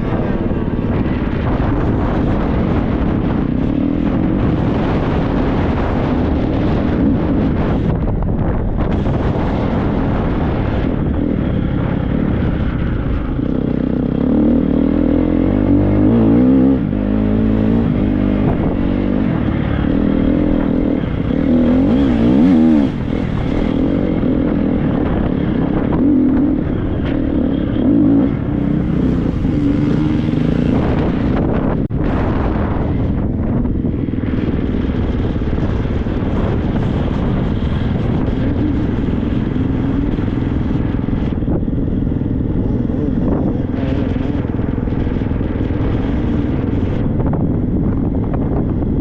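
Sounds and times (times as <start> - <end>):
wind noise on microphone: 0.0 - 49.0
motocross bike engine revving: 9.0 - 32.7.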